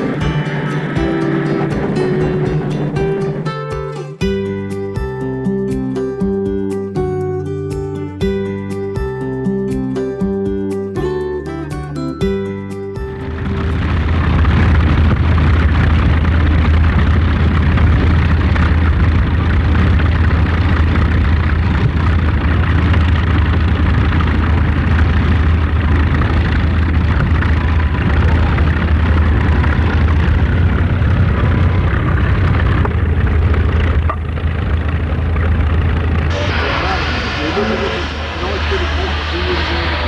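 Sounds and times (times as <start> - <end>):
machine running with low hum: 0.0 - 3.6, 13.1 - 40.0.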